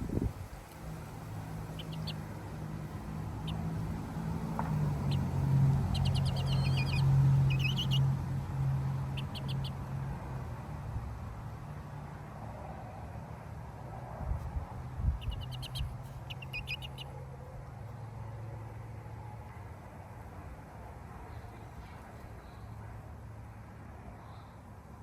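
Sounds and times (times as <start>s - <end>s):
high bird chirps: 1.7s - 2.3s, 4.9s - 8.1s, 9.1s - 9.8s, 15.2s - 17.1s.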